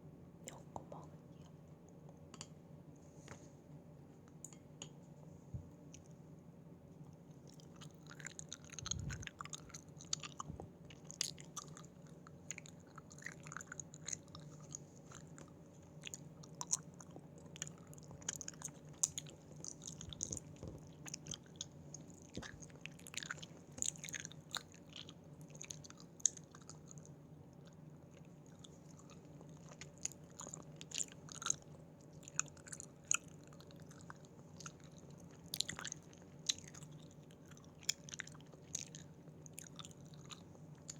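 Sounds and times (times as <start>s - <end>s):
chewing gummy candies: 7.0s - 40.9s
mouth clicks and smacks: 7.6s - 15.4s.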